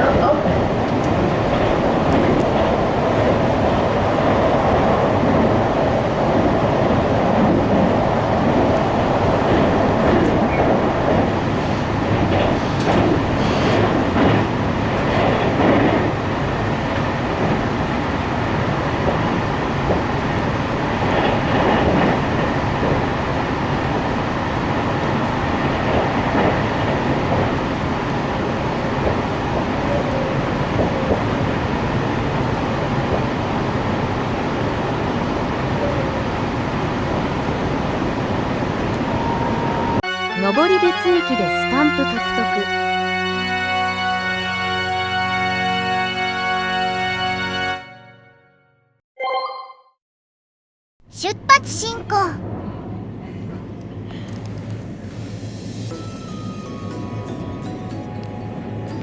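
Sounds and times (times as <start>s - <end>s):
clickety-clack over rail joints: 0.0s - 37.5s
train wheel and rail noise: 0.0s - 42.7s, 52.4s - 59.0s.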